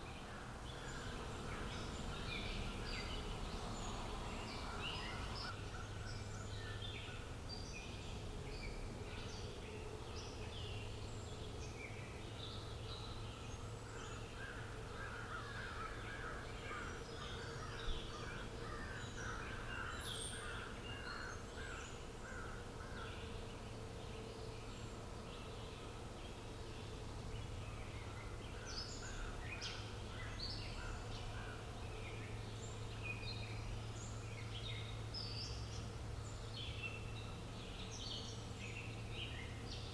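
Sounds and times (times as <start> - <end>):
birds chirping and calling: 0.0 - 7.9, 11.3 - 23.6
steady low hum: 0.0 - 39.9.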